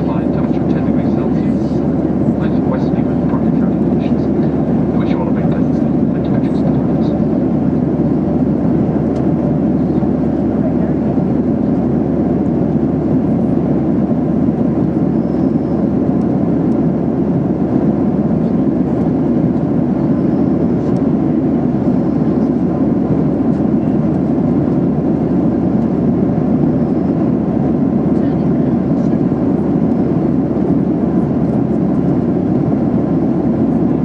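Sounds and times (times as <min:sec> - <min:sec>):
aircraft engines droning: 0:00.0 - 0:34.0
airflow over fuselage: 0:00.0 - 0:34.0.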